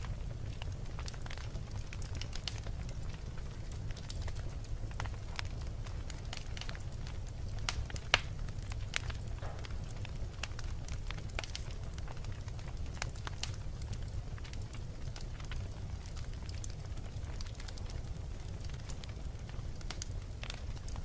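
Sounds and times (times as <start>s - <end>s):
fire crackles and pops: 0.0s - 21.0s
fire flames rumbling: 0.0s - 21.0s.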